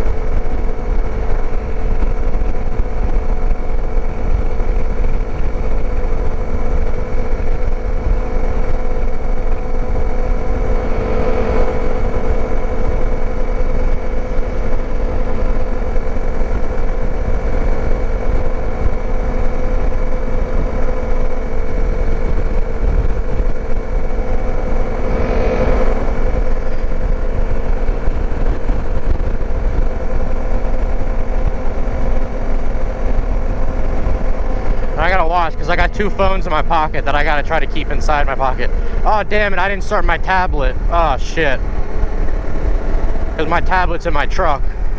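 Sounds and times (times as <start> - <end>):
dirt bike engine running: 0.0 - 44.9.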